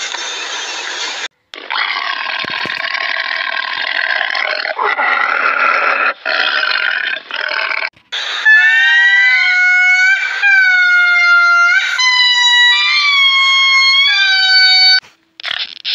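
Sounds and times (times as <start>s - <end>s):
tiger growling: 4.7s - 7.7s.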